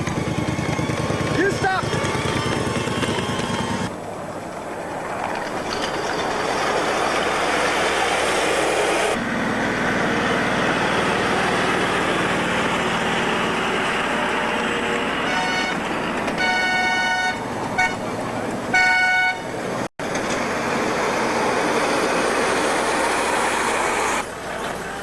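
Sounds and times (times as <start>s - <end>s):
miniature train running: 0.0s - 3.9s, 4.7s - 9.2s.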